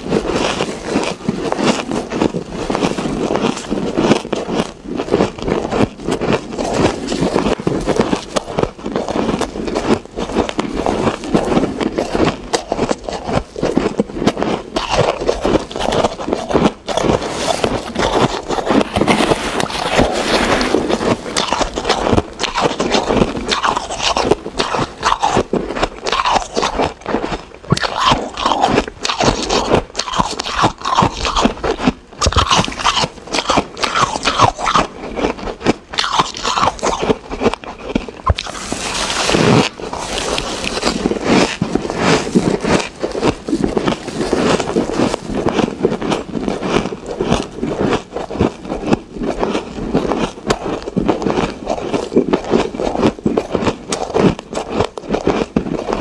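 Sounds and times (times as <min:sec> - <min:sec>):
ice being chewed: 0:00.0 - 0:56.0.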